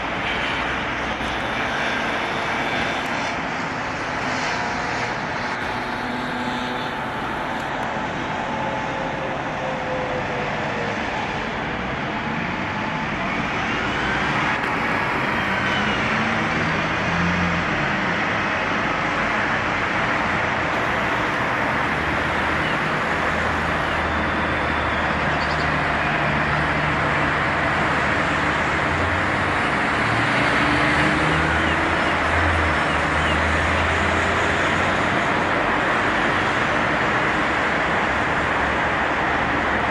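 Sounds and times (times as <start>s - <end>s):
bus diesel engine running: 0.0s - 3.2s, 5.5s - 17.8s, 20.5s - 25.2s
road noise: 0.0s - 39.9s.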